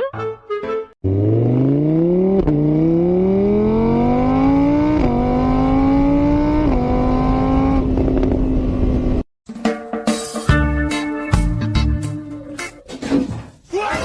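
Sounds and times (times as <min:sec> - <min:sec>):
car engine accelerating: 0:01.0 - 0:09.2.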